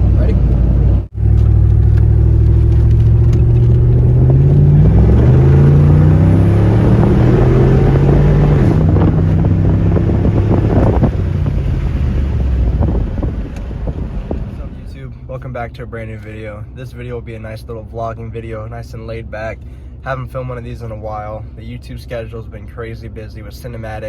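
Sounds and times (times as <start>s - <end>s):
car engine accelerating: 0.0s - 16.4s.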